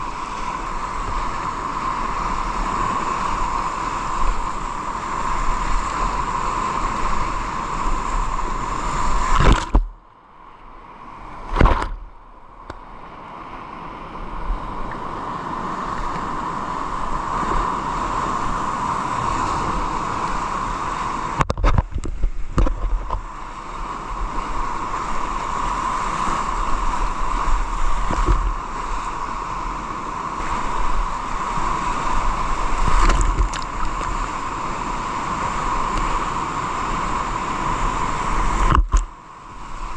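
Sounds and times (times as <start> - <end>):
water gurgling and sloshing: 0.0 - 39.9
fast-moving water rushing: 15.9 - 39.9.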